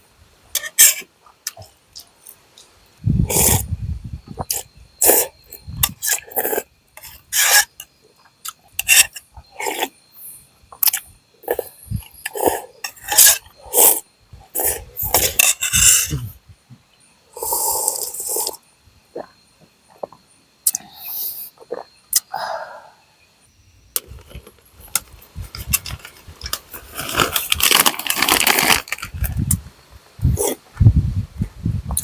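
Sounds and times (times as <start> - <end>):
rough scraping strokes: 14.6 - 16.2.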